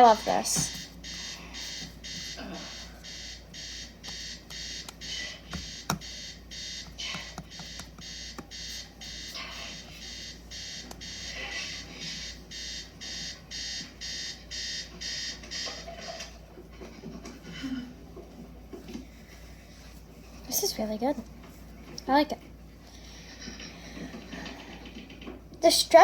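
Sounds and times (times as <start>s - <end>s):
electronic alarm beeping: 0.0s - 16.3s.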